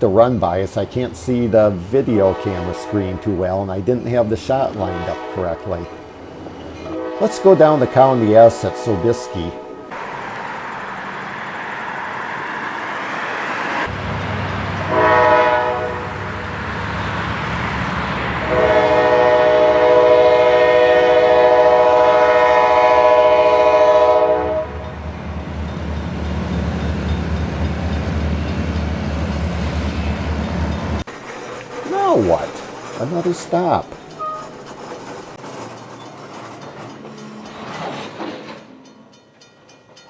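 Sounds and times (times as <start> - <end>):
diesel locomotive engine running: 0.0 - 39.2
train air horn blasts: 2.1 - 3.6, 4.8 - 6.1, 6.8 - 10.4, 14.9 - 16.3, 18.5 - 24.9, 31.2 - 34.8.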